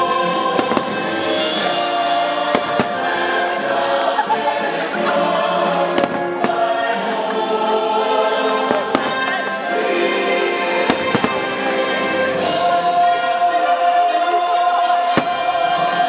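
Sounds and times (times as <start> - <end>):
choir singing held notes: 0.0 - 16.0
music soundtrack: 0.0 - 16.0
fireworks shells bursting: 2.4 - 3.3, 10.9 - 11.5, 15.2 - 15.7.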